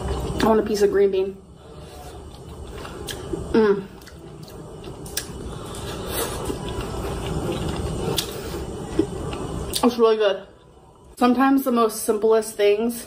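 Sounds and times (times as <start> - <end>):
person chewing food: 1.7 - 9.8.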